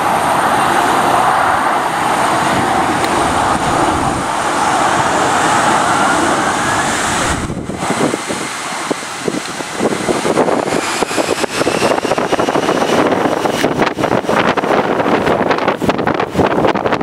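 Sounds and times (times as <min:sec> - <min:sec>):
faint rising whine: 0:00.0 - 0:14.0
jet engines running: 0:00.0 - 0:17.0.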